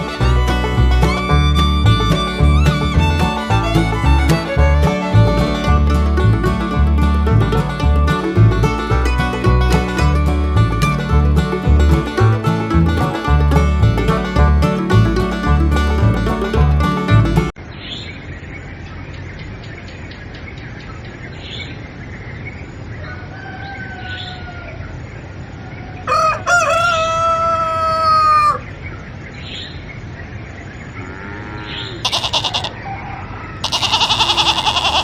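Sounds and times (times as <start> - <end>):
rooster crowing: 23.0 - 24.8, 26.1 - 28.6, 31.1 - 35.0
loud rasping noise: 32.0 - 32.7, 33.6 - 35.0
chicken clucking: 32.0 - 35.0.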